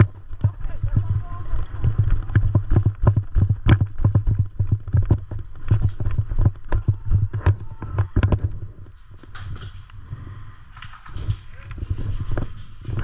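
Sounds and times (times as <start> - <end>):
running footsteps: 0.0 - 13.0.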